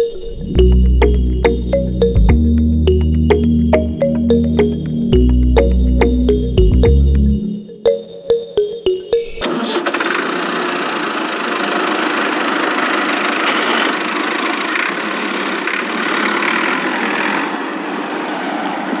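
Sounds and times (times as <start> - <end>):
chaff cutter machine running: 9.4 - 17.8.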